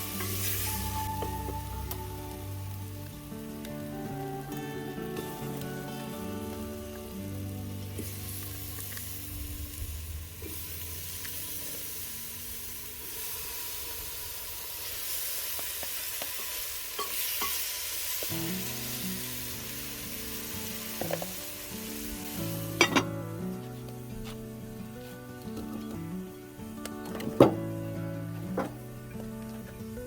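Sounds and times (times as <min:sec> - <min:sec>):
background music: 0:00.0 - 0:10.6, 0:18.3 - 0:30.0
food sizzling in a pot: 0:00.0 - 0:30.0.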